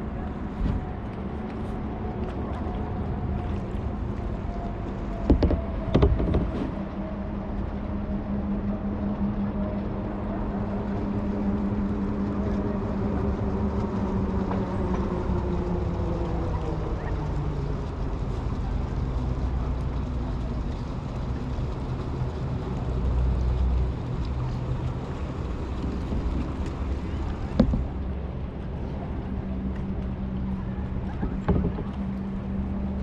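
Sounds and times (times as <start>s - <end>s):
distant engine drone: 0.0s - 33.0s
sharp knocks: 5.3s - 6.7s.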